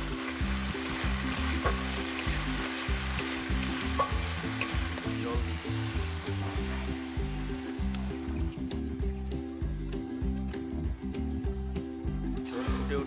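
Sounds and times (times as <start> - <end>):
paste sizzling in hot oil: 0.0 - 8.4
spatula stirring and scraping: 0.3 - 5.0
spatula clicking against pan: 0.8 - 2.4.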